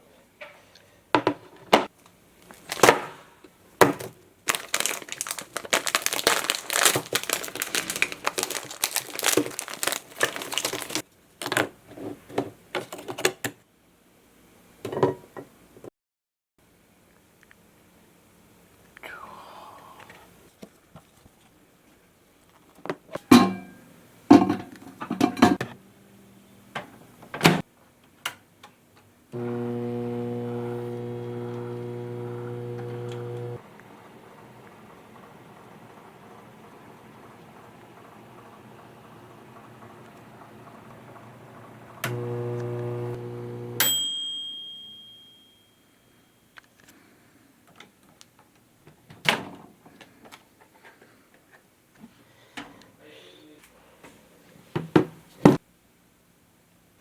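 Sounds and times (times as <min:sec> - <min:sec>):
kitchenware clinking: 0:23.2 - 0:25.7
steady hum: 0:29.4 - 0:33.6
microwave oven humming: 0:29.4 - 0:44.2
microwave ding: 0:43.5 - 0:45.9.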